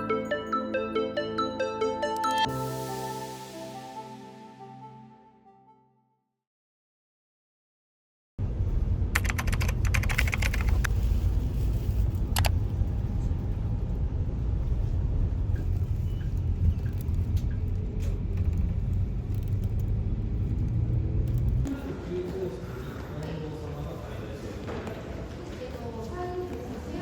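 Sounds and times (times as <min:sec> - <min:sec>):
low rumble: 0:08.4 - 0:21.7.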